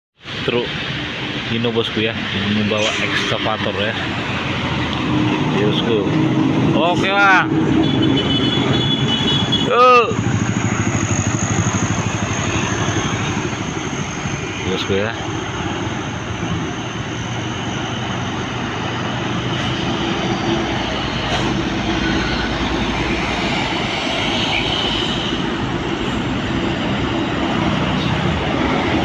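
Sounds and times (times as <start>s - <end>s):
diesel truck engine running: 8.6s - 29.0s.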